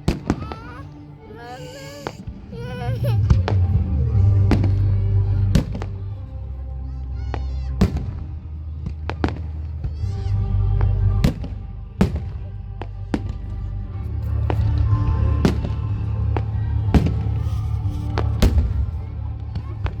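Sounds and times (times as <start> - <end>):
music with held notes: 0.0 - 20.0
deep rumble: 2.4 - 20.0.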